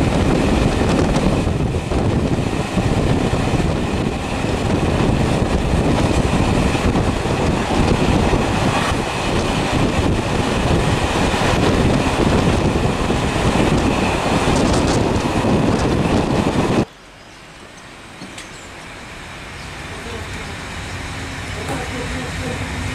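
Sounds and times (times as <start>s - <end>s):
moving vehicle running noise: 0.0s - 16.9s.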